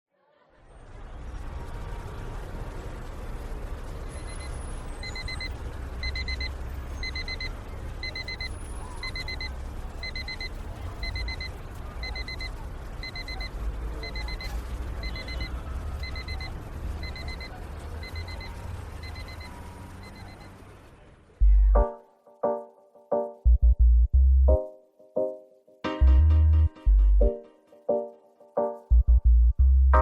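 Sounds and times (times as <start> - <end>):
electronic alarm beeping: 4.2 - 20.6
steady low rumble: 21.4 - 21.9, 23.5 - 24.6, 28.9 - 30.0.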